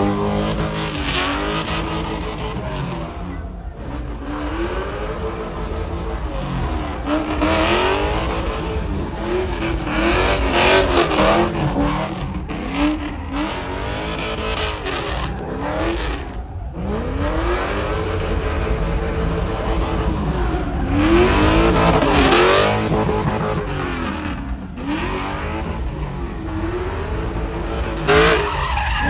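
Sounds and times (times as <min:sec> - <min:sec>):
truck engines revving: 0:00.0 - 0:29.0
steady low rumble: 0:14.4 - 0:28.1.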